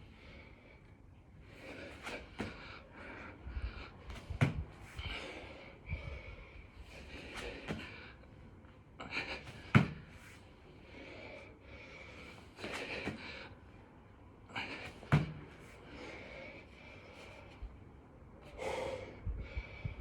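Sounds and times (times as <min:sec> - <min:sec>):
man breathing hard: 0:00.0 - 0:08.4, 0:09.0 - 0:13.8, 0:14.4 - 0:17.8, 0:18.4 - 0:20.0
hands and feet thudding on floor: 0:04.1 - 0:05.0, 0:09.5 - 0:10.1, 0:14.8 - 0:15.5.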